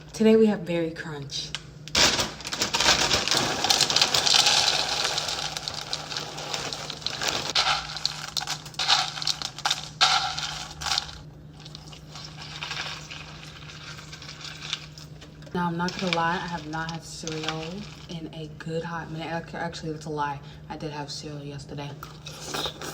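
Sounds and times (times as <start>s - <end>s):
cereal poured into bowl: 2.6s - 15.2s, 15.8s - 18.1s.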